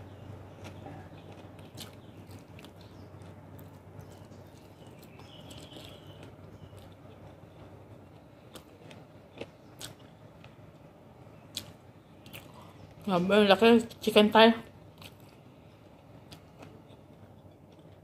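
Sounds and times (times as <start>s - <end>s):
person chewing: 0.5s - 10.6s, 11.5s - 12.9s, 14.9s - 18.0s.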